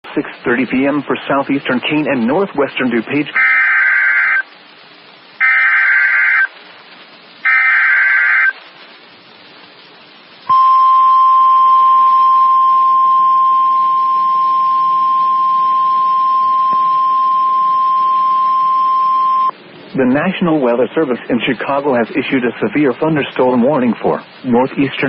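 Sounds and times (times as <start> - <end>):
harsh buzzing data bursts: 0.5 - 6.6, 7.4 - 9.4, 10.5 - 19.5
steady warning alarm tone: 3.4 - 4.5, 5.4 - 6.5, 7.4 - 8.6, 10.5 - 19.5.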